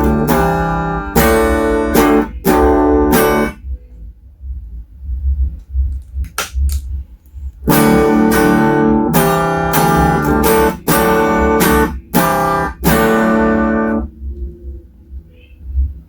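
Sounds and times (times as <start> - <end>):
electric guitar chords strummed: 0.0 - 3.6, 7.7 - 14.1.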